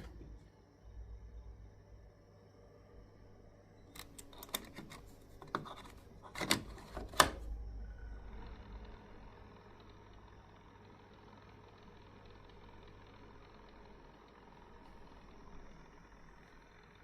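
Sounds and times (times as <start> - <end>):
low rumble: 7.5 - 10.7.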